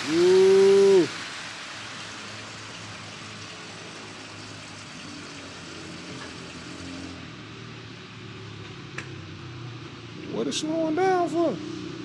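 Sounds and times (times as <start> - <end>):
fuel rushing from pump nozzle: 0.0 - 7.2.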